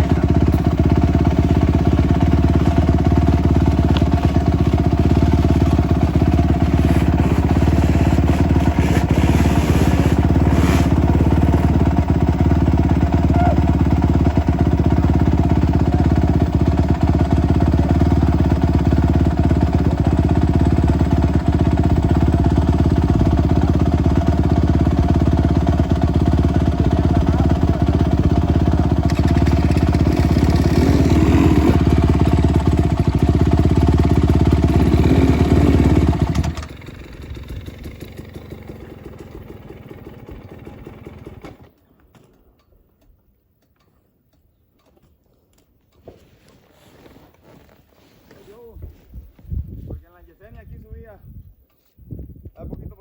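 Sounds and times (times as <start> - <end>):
motorcycle engine running: 0.0 - 41.7.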